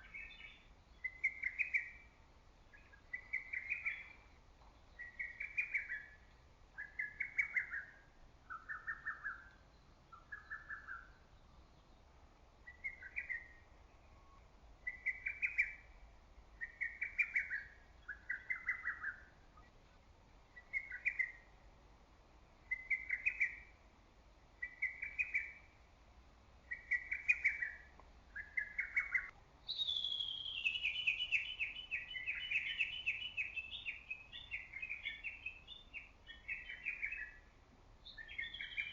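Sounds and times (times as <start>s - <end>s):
cuckoo singing: 26.7s - 35.5s.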